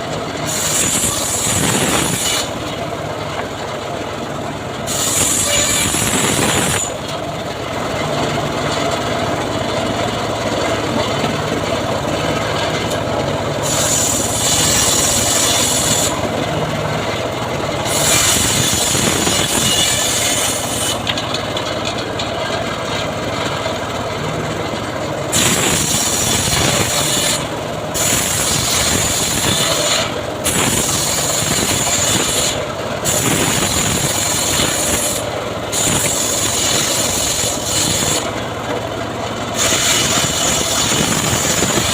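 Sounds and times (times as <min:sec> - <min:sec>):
sawmill motor droning: 0:00.0 - 0:41.9
saw blade hissing through wood: 0:00.4 - 0:02.6, 0:04.8 - 0:07.0, 0:13.6 - 0:16.2, 0:17.8 - 0:21.1, 0:25.3 - 0:38.3, 0:39.5 - 0:41.9.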